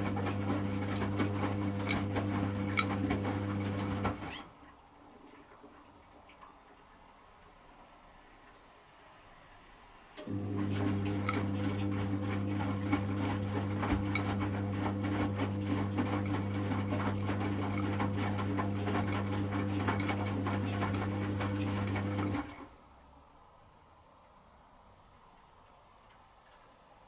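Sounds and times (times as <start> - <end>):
washing machine drum motor humming: 0.0 - 4.4, 10.2 - 22.6.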